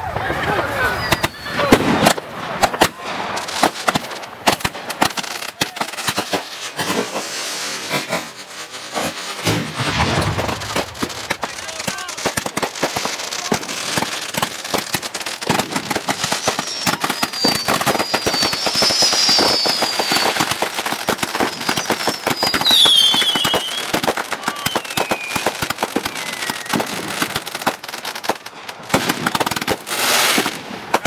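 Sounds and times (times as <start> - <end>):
fireworks crackling and popping: 0.0 - 31.0
fireworks whistles falling in pitch: 0.8 - 2.1, 15.5 - 27.1.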